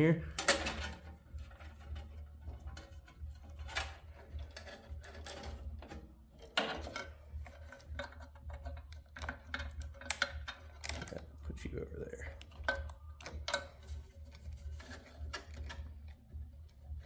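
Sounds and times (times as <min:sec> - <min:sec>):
steady low hum: 0:00.0 - 0:17.0
metal parts and tools clicking: 0:00.2 - 0:17.0.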